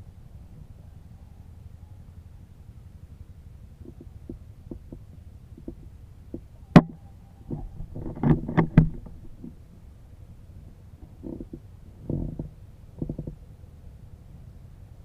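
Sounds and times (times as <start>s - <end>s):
low steady rumble: 0.0s - 15.0s
clicks and knocks: 6.8s - 9.6s.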